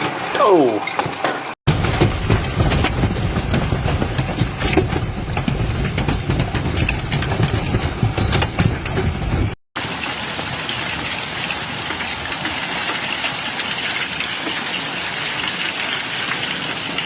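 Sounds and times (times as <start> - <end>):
low rumble of wind: 1.7 - 13.2
rain or hail pattering: 1.7 - 17.0.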